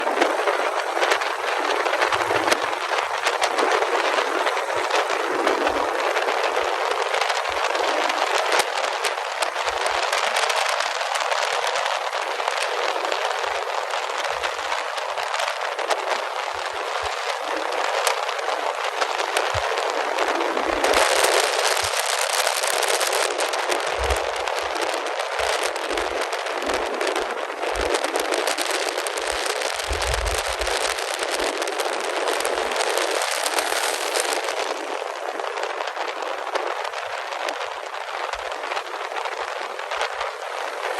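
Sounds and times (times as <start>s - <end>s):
rushing wind and road noise: 0.0s - 40.9s.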